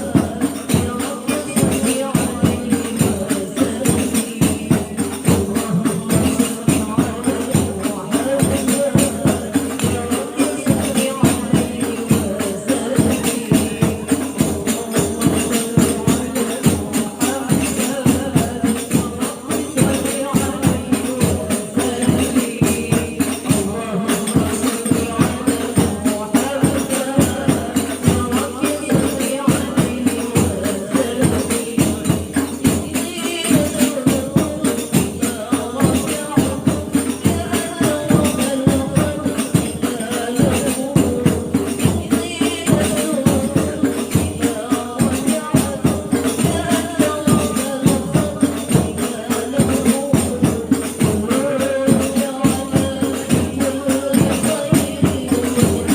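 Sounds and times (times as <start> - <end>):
frame drums beating: 0.0 - 55.9
women singing in a group: 0.0 - 55.9.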